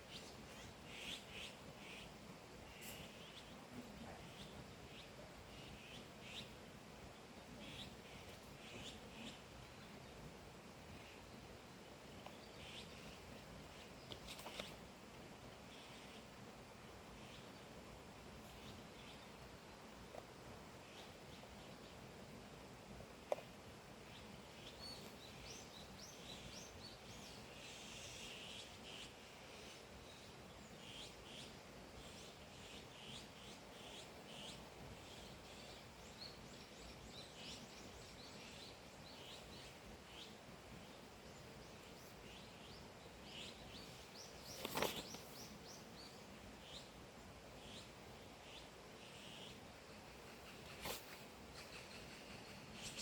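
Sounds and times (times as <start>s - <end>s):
background hiss: 0.0s - 53.0s
faint birds chirping: 0.0s - 53.0s
brief rustle: 44.4s - 45.4s, 50.7s - 51.3s.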